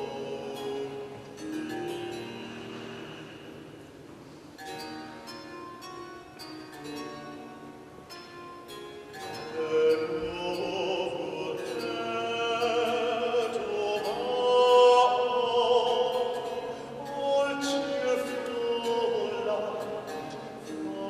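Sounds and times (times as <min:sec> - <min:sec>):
baritone singing classical style: 0:00.0 - 0:03.8, 0:09.2 - 0:21.0.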